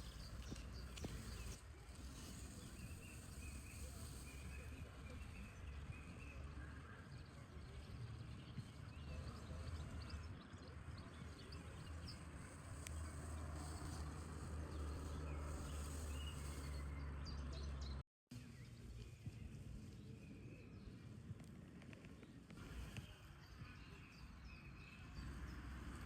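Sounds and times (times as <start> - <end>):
birds chirping: 0.0 - 26.0
low outdoor rumble: 0.0 - 26.0.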